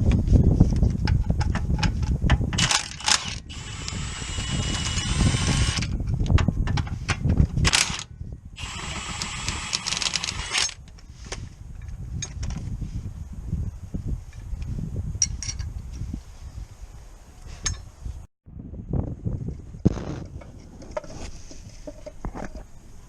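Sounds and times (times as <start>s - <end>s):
rapid mechanical clicking: 2.6s - 5.9s, 7.6s - 8.0s.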